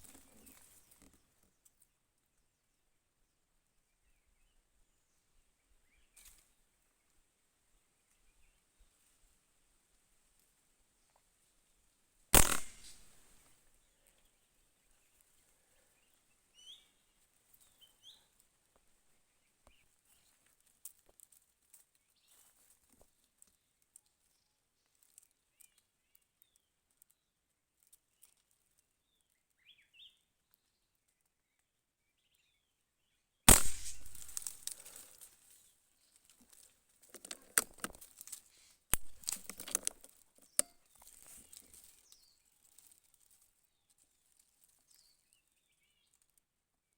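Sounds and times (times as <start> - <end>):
clicks: 12.4 - 13.0
gunshot: 12.4 - 13.1, 33.5 - 34.7
rustling through leaves: 33.5 - 37.0.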